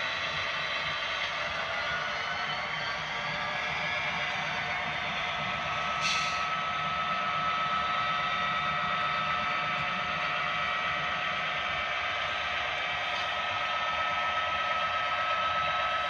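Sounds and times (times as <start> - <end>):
diesel engine sound through speakers: 0.0 - 16.0.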